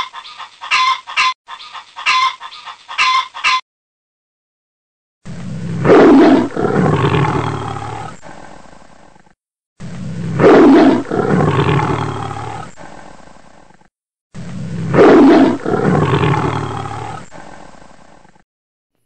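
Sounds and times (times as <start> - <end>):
tiger roaring: 5.3 - 8.6, 9.8 - 13.2, 14.4 - 17.8.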